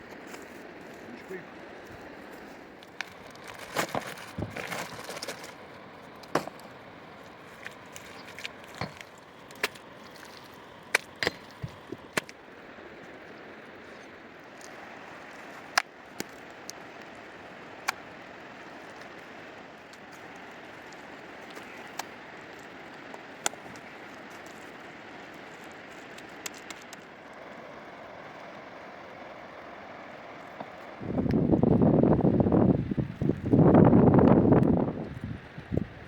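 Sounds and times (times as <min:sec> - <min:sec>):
sharp knocks and cracks: 0:06.2 - 0:06.7, 0:10.9 - 0:12.4.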